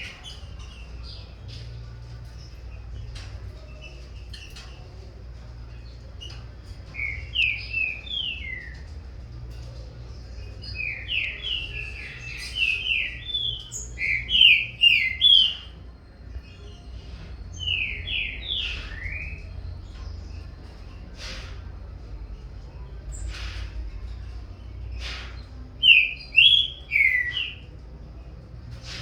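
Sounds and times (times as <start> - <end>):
birds singing whistled notes: 6.1 - 9.2, 10.2 - 21.6, 24.8 - 27.8.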